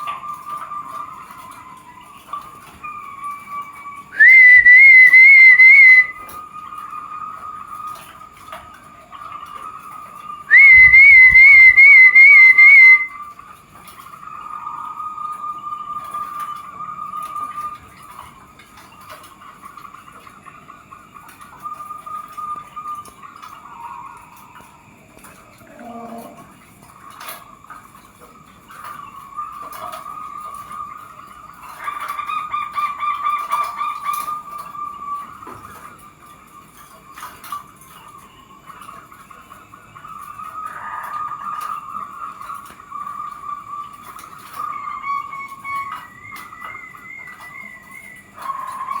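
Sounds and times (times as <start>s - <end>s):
long steady whistling tone: 0.0s - 49.0s
bird calling pulsed notes: 2.8s - 7.1s, 10.4s - 13.3s, 43.6s - 49.0s
dove cooing: 25.4s - 26.6s.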